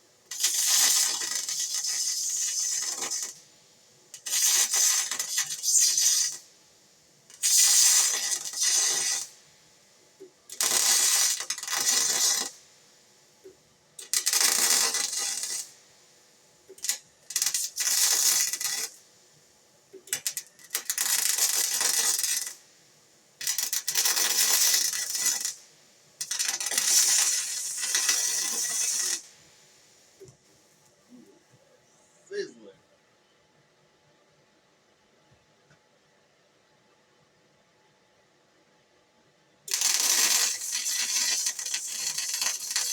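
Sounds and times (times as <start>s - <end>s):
arc welding crackle: 0.0s - 6.6s, 7.3s - 9.6s, 10.2s - 19.2s, 19.9s - 22.8s, 23.4s - 30.9s, 39.7s - 42.9s.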